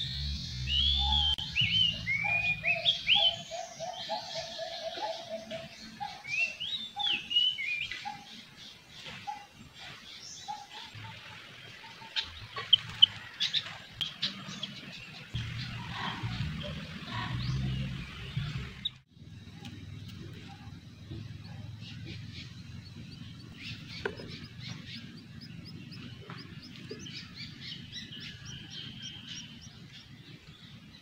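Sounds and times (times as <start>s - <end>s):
bird chirping: 0.0s - 31.0s.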